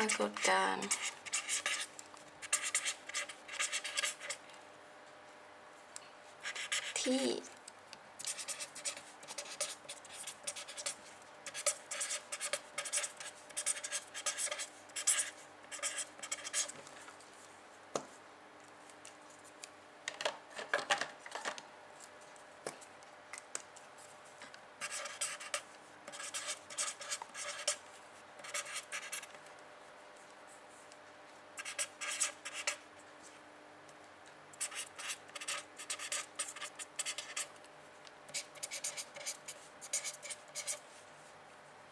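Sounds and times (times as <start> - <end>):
pen scratching on paper: 0.0 - 4.4, 6.4 - 7.3, 8.2 - 16.7, 24.8 - 27.8, 28.4 - 29.4, 31.6 - 32.8, 34.6 - 37.5, 38.3 - 40.8.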